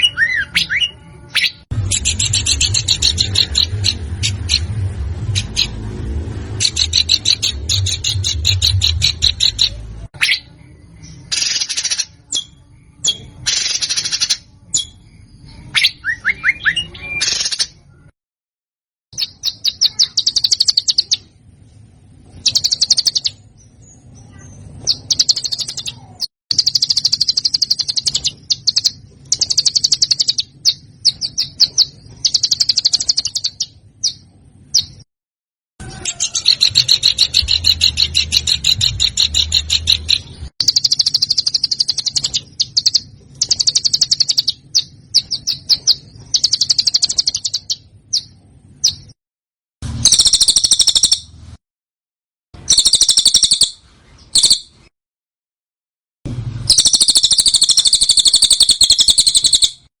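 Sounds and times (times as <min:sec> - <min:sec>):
songbird harsh trills: 0:19.2 - 0:21.3, 0:35.8 - 0:49.0, 0:56.7 - 0:59.9.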